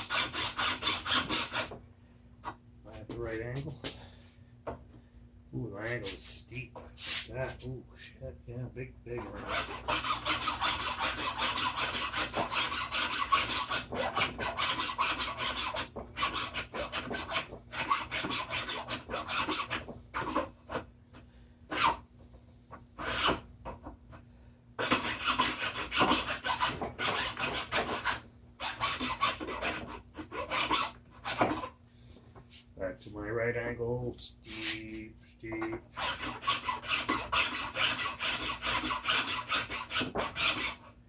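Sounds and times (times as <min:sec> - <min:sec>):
hand tool rasping: 0:00.0 - 0:01.7, 0:09.2 - 0:20.4, 0:24.8 - 0:31.7, 0:36.0 - 0:40.8.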